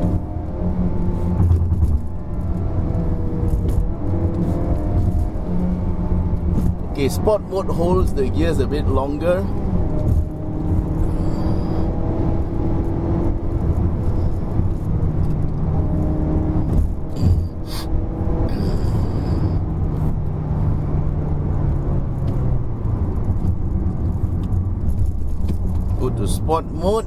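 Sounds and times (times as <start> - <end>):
car engine humming: 0.0 - 27.0
road and tyre rumble: 0.0 - 27.0.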